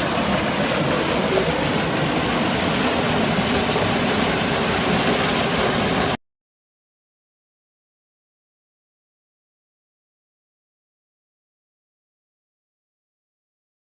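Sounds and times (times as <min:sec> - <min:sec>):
waterfall roaring: 0:00.0 - 0:06.2.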